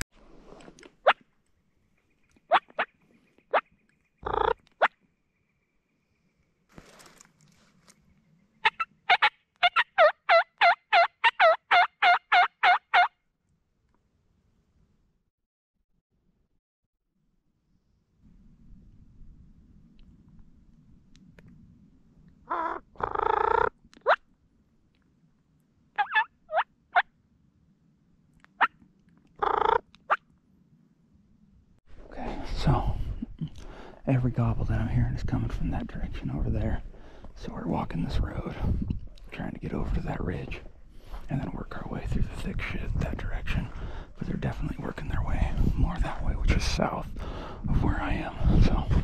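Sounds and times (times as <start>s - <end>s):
turkey call yelps: 4.2s - 4.9s, 8.6s - 13.1s, 22.5s - 24.2s, 26.0s - 26.7s.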